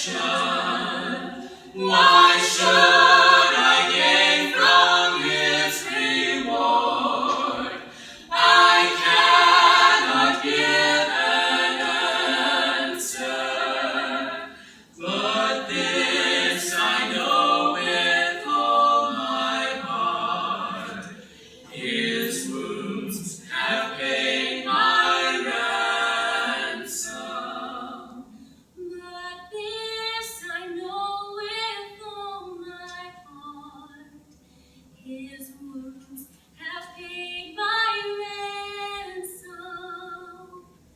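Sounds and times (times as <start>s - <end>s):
vocal group singing in harmony: 0.0s - 28.5s.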